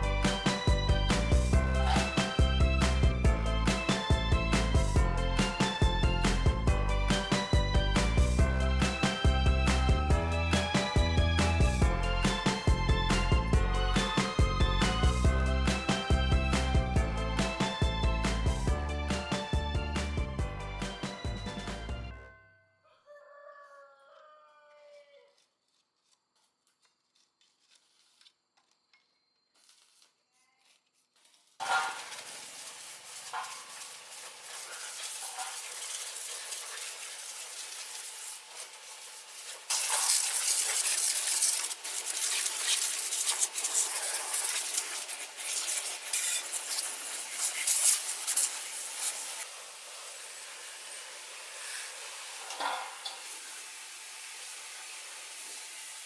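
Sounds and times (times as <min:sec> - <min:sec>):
rooster crowing: 0:22.8 - 0:25.3
steady hiss: 0:31.6 - 0:56.0.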